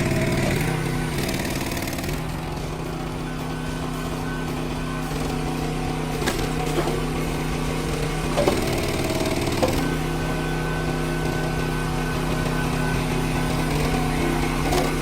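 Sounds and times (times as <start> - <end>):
small petrol engine running: 0.0 - 15.0
wood cracking and splintering: 6.2 - 10.0.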